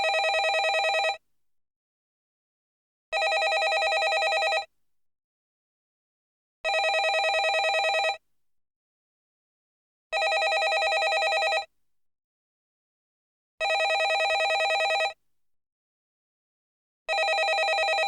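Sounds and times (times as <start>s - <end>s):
landline telephone ringing: 0.0s - 1.2s, 3.2s - 4.7s, 6.7s - 8.2s, 10.2s - 11.7s, 13.6s - 15.2s, 17.1s - 18.0s.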